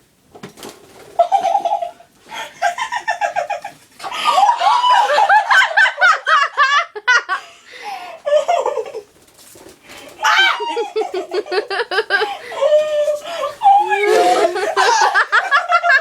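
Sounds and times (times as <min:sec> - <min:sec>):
women laughing hard: 0:02.6 - 0:07.4, 0:10.2 - 0:16.0.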